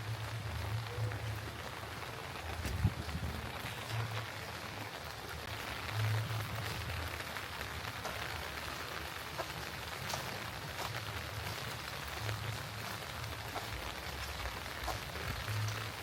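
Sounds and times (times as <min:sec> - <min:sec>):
raindrops ticking on surfaces: 0:00.0 - 0:16.0
steady rain falling: 0:00.0 - 0:16.0
dull low thumps: 0:02.6 - 0:03.5.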